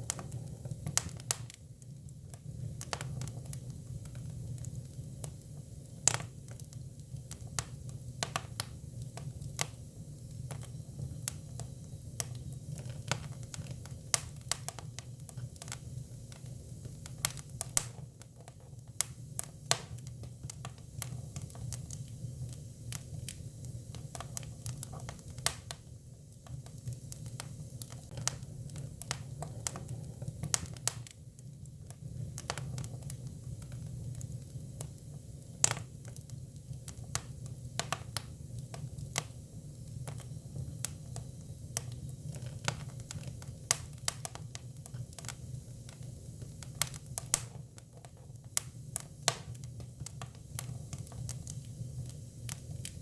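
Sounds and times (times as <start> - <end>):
firewood crackling and popping: 0.0 - 53.0
low fire rumble: 0.0 - 53.0.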